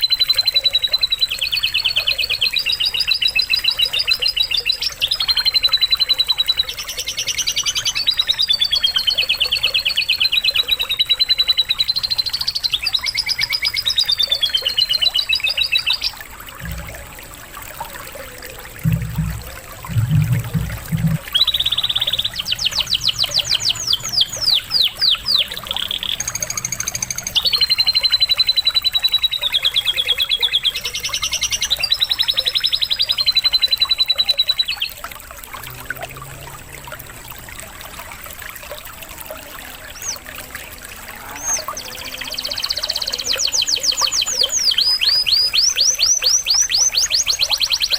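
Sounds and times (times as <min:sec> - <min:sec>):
water trickling: 0:00.0 - 0:47.9
low thumps: 0:16.6 - 0:17.2, 0:18.8 - 0:21.3
canary singing trills: 0:18.2 - 0:35.0, 0:39.9 - 0:40.5, 0:41.1 - 0:47.9.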